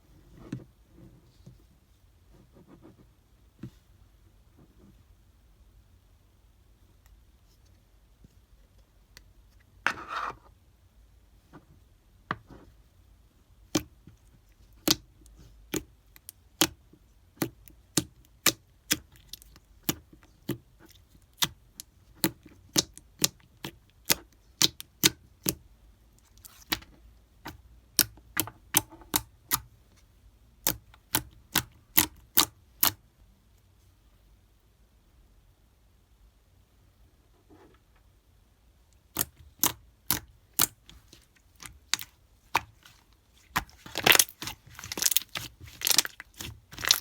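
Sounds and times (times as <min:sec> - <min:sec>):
crackly slime squish: 0:13.7 - 0:25.6, 0:39.0 - 0:47.0
slime popping and clicking: 0:43.5 - 0:47.0.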